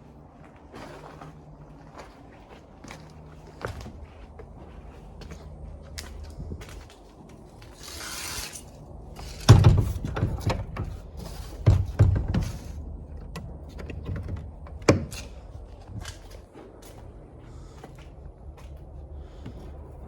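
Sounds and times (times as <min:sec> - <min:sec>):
heavy thuds and knocks: 0:09.5 - 0:16.1.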